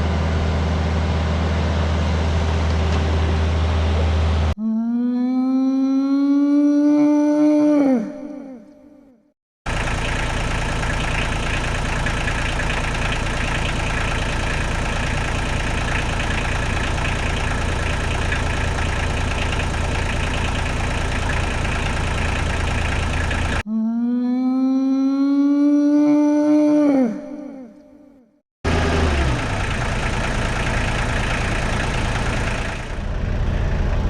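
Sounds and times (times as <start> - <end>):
diesel engine idling: 9.7 - 23.6, 28.7 - 34.0.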